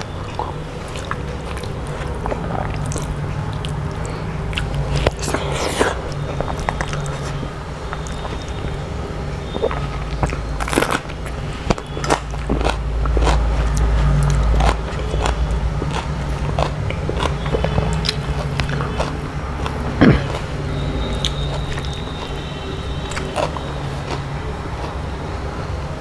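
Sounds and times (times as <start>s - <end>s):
person chewing food: 0.0s - 25.3s
low steady hum: 0.0s - 26.0s
sharp food crunches: 9.5s - 25.0s.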